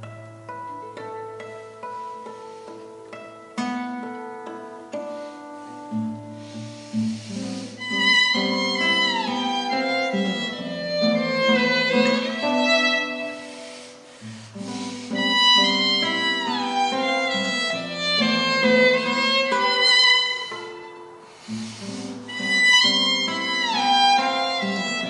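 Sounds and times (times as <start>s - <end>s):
string orchestra playing slow piece: 0.0s - 25.0s
violin melody sliding downward: 0.0s - 25.0s.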